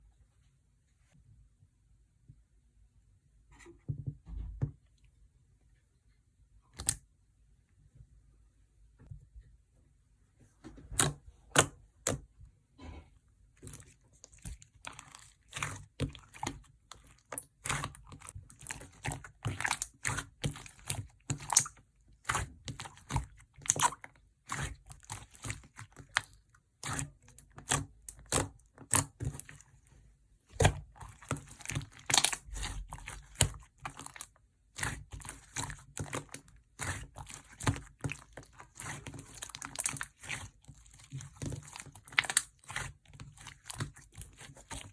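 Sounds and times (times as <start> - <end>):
slime crackling and popping: 13.6 - 29.6, 30.6 - 44.9.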